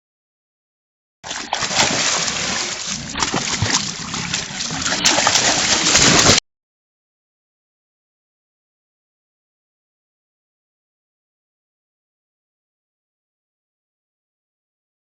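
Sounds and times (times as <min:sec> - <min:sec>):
river water splashing: 0:01.2 - 0:06.4.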